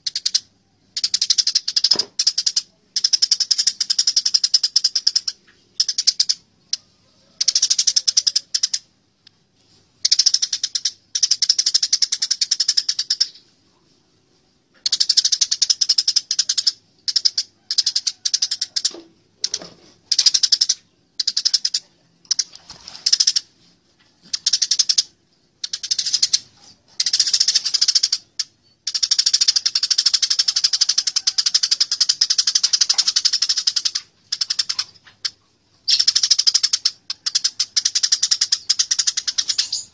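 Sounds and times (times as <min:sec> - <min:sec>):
sparrows chattering agitatedly: 0:24.2 - 0:39.9.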